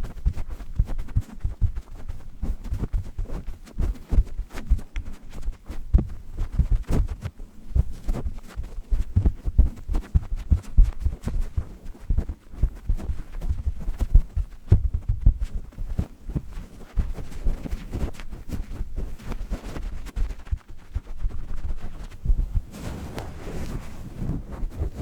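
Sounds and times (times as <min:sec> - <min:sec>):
steady low hiss: 0:00.0 - 0:25.0.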